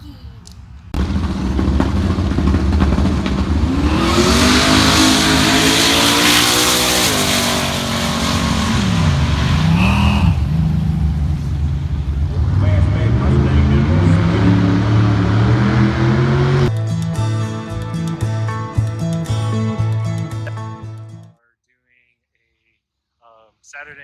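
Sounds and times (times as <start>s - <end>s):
race car engine revving: 1.0s - 16.7s.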